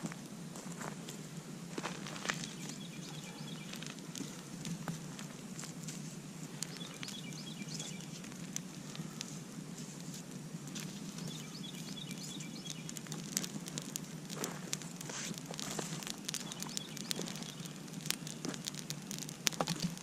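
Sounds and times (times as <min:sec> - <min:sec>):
campfire crackling and popping: 0:00.0 - 0:20.0
faint high chirping: 0:02.4 - 0:03.9, 0:06.6 - 0:08.2, 0:11.2 - 0:13.1, 0:16.4 - 0:17.8.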